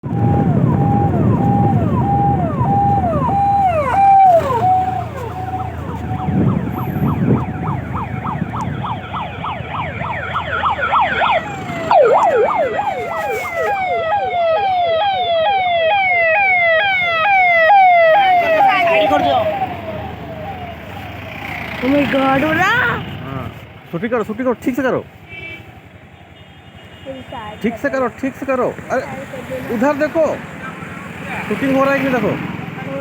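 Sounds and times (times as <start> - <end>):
electronic siren warbling: 0.0 - 22.8.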